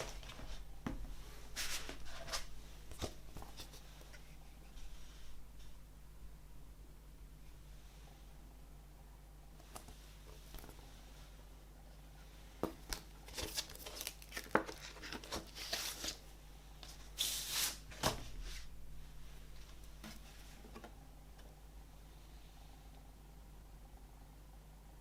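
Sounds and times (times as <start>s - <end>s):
paper or plastic rustling: 12.9s - 16.2s.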